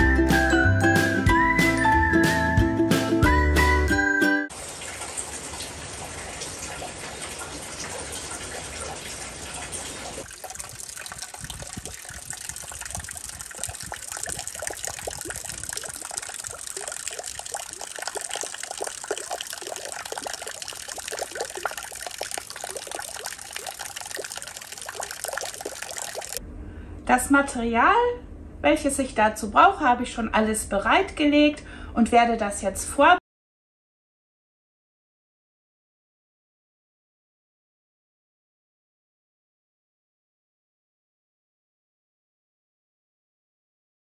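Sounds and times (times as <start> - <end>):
water dripping: 4.5 - 26.4
water rushing: 4.5 - 26.4.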